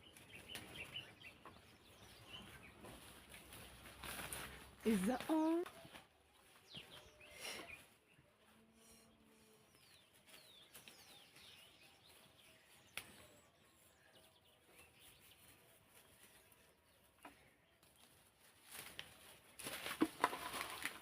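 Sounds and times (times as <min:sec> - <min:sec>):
faint bird chirps: 0:05.3 - 0:18.2.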